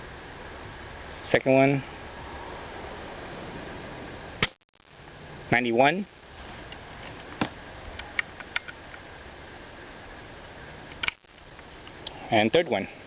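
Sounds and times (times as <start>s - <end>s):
steady background hiss: 0.0s - 13.0s
air rifle mechanical clicks: 10.9s - 11.5s.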